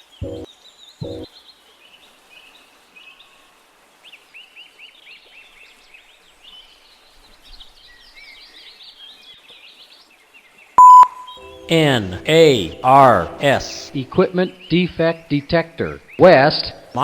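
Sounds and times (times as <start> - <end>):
small birds chirping: 0.0 - 3.4, 14.3 - 17.0
faint outdoor hiss: 0.0 - 17.0.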